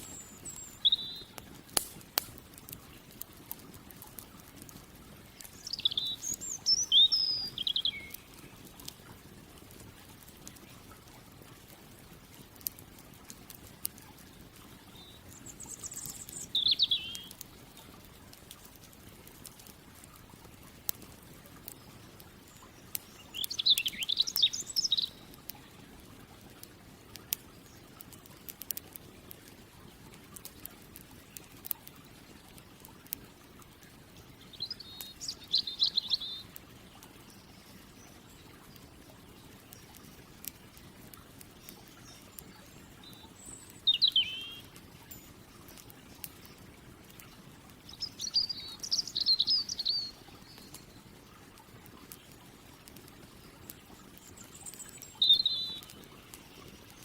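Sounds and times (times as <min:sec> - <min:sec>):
songbird trilling: 0:00.0 - 0:01.3, 0:05.6 - 0:08.3, 0:15.0 - 0:17.4, 0:23.0 - 0:25.3, 0:34.6 - 0:36.5, 0:43.0 - 0:45.2, 0:47.9 - 0:50.7, 0:54.5 - 0:56.0
faint campfire crackle: 0:00.0 - 0:57.0.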